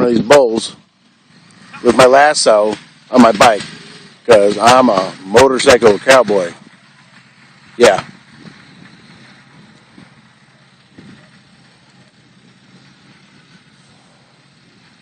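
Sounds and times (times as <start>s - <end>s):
wind noise on microphone: 0.0s - 2.0s, 7.8s - 15.0s
motorcycle engine humming: 0.0s - 15.0s.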